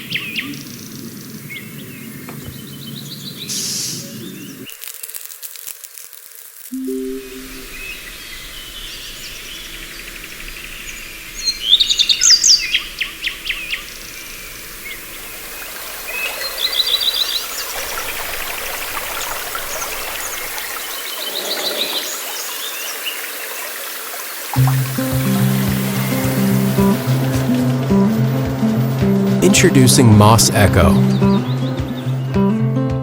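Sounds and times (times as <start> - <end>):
outdoor ambience hiss: 0.0 - 31.2
birds singing: 7.7 - 23.6, 31.0 - 32.8
rapid bird chirps and trills: 7.8 - 15.2.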